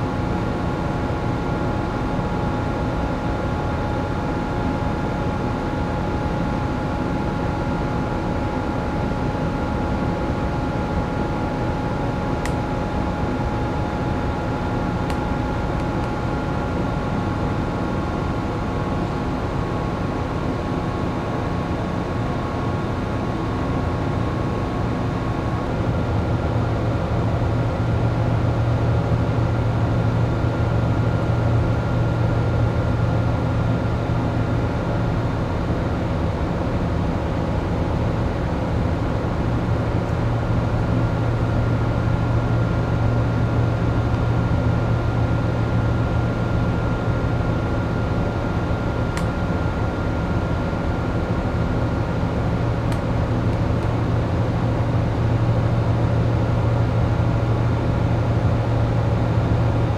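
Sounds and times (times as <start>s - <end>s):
ship machinery drone: 0.0s - 59.9s.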